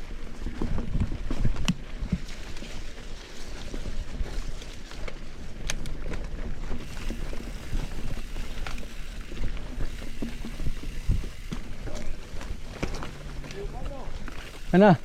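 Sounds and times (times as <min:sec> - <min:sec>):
bike tyres rumbling on dirt: 0:00.0 - 0:15.0
bike knocks and rattles: 0:03.7 - 0:14.9.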